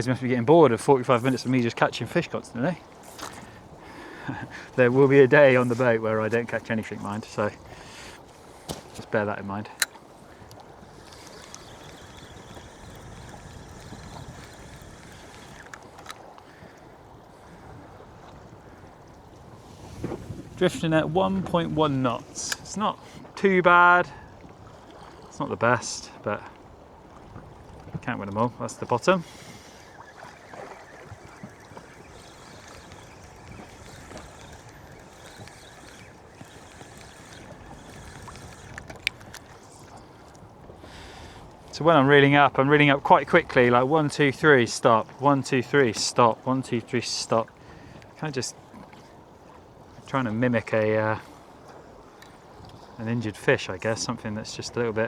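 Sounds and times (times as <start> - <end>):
sea noise: 0.0 - 55.0
water lapping against boat hull: 0.0 - 55.0
wind: 0.0 - 55.0
faint clicks: 3.0 - 19.2, 21.5 - 23.4, 27.9 - 41.8, 51.6 - 53.0.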